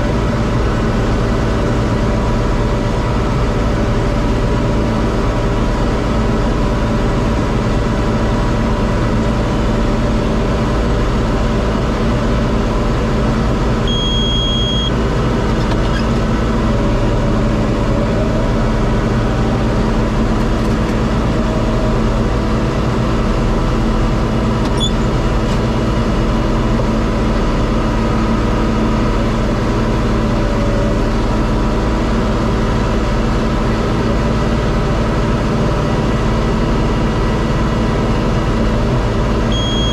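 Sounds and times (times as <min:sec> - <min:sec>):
tractor diesel engine running: 0:00.0 - 0:39.9
electronic beep: 0:13.9 - 0:14.9, 0:39.5 - 0:39.9.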